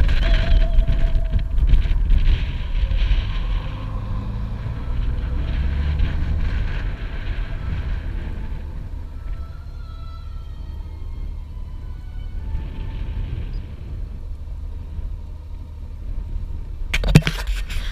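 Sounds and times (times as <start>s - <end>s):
motorcycle engine rumble: 0.0s - 17.9s
wind buffeting microphone: 0.0s - 17.9s.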